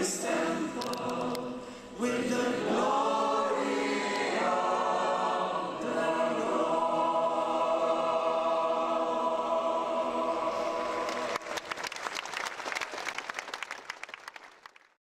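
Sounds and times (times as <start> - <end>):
choir singing with accompaniment: 0.0 - 11.6
audience applause: 10.5 - 15.0.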